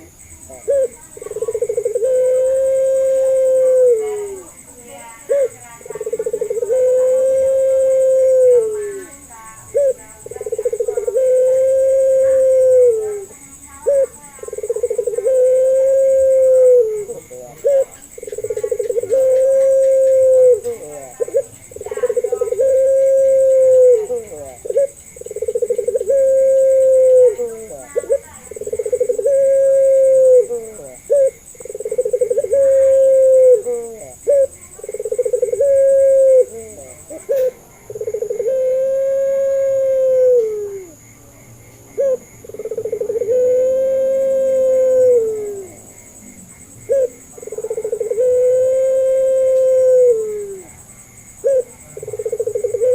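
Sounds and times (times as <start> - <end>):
dove cooing: 0.0 - 41.2, 41.9 - 52.9.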